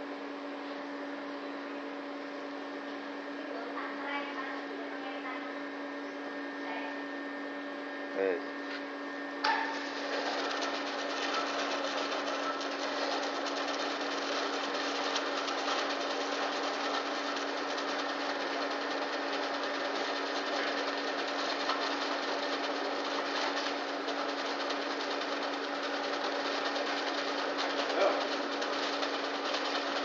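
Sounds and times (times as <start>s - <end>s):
winding machine humming: 9.4s - 30.0s.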